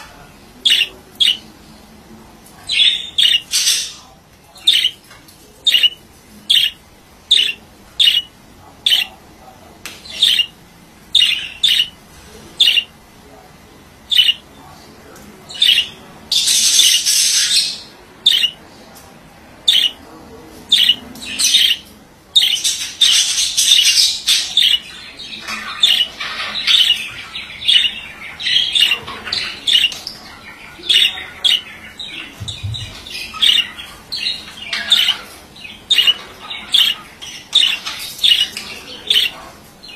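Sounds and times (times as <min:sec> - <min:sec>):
budgerigar squawks: 0:00.6 - 0:01.4, 0:02.8 - 0:03.9, 0:04.7 - 0:04.9, 0:05.7 - 0:09.1, 0:10.2 - 0:10.6, 0:11.2 - 0:12.0, 0:12.6 - 0:12.9, 0:14.1 - 0:14.4, 0:15.5 - 0:15.9, 0:18.3 - 0:18.6, 0:19.7 - 0:20.0, 0:20.7 - 0:21.8, 0:23.7 - 0:24.8, 0:25.8 - 0:27.0, 0:35.9 - 0:38.5
budgerigar chirping: 0:00.6 - 0:01.5, 0:02.7 - 0:05.0, 0:05.6 - 0:09.2, 0:10.0 - 0:12.0, 0:12.6 - 0:12.9, 0:14.1 - 0:14.5, 0:15.5 - 0:18.6, 0:19.6 - 0:20.0, 0:20.7 - 0:39.9.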